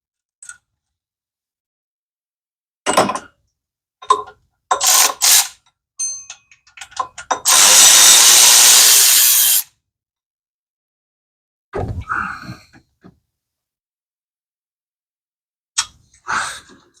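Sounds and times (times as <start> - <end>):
power tool running: 7.5 - 9.6.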